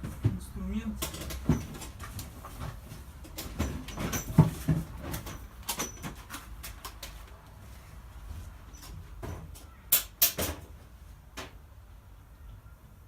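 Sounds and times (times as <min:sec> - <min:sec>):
tools and metal parts clicking: 0:01.0 - 0:02.0.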